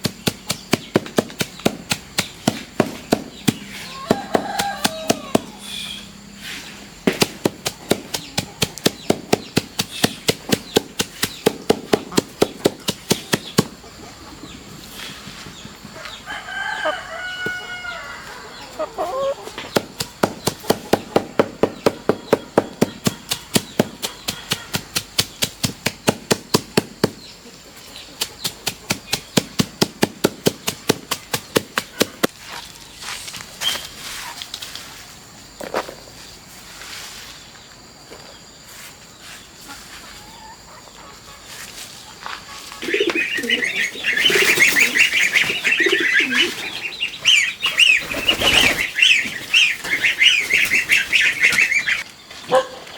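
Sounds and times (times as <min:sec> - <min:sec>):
rapid evenly spaced knocks: 0:00.0 - 0:05.5, 0:07.0 - 0:13.8, 0:19.6 - 0:27.2, 0:28.2 - 0:32.3
rooster crowing: 0:03.8 - 0:05.7, 0:16.0 - 0:19.6.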